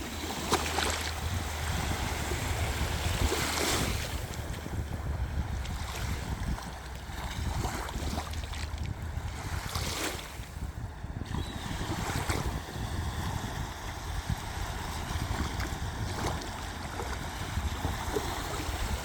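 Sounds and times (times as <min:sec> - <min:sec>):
waves on a shore: 0:00.0 - 0:19.0
wind buffeting microphone: 0:00.0 - 0:19.0.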